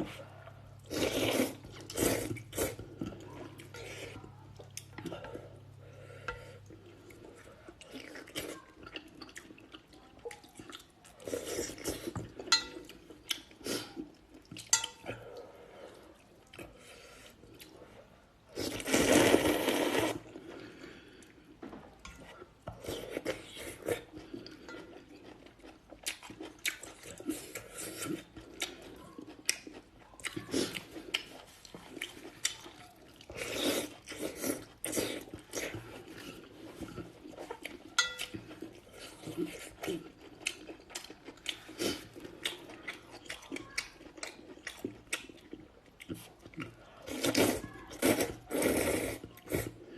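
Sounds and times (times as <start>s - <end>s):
chewing with smacks: 0.0s - 19.0s, 20.1s - 49.9s
noodle slurping: 0.9s - 3.0s, 18.5s - 20.5s, 47.1s - 49.6s.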